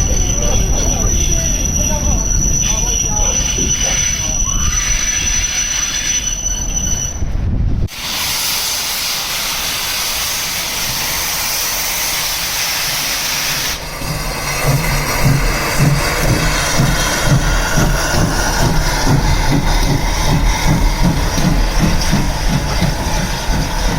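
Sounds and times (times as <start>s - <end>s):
steam locomotive rumble: 0.0s - 23.9s
hiss of escaping steam: 7.9s - 23.9s.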